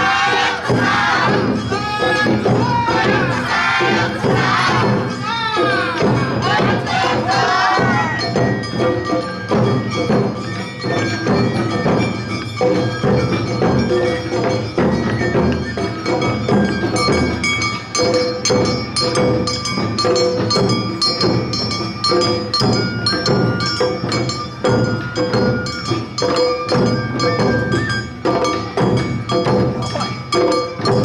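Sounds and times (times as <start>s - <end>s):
bamboo flute melody: 0.0s - 12.0s, 13.8s - 18.4s, 22.1s - 31.0s
voices calling out: 0.0s - 12.0s
drums beating: 0.0s - 31.0s
struck bell keeping beat: 0.0s - 31.0s.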